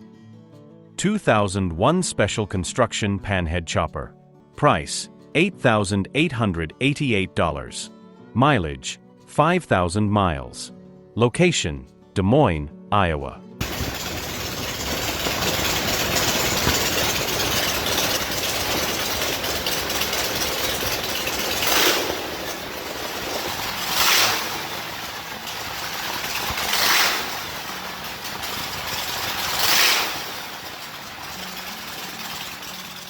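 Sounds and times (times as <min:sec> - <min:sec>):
motorcycle engine revving: 0:13.6 - 0:33.0.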